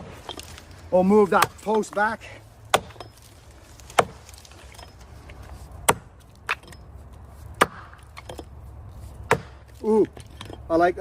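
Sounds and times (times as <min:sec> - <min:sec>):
axe chopping into trunk: 0:02.7 - 0:03.2, 0:03.9 - 0:04.4, 0:05.8 - 0:06.8, 0:07.6 - 0:08.4, 0:09.2 - 0:09.7.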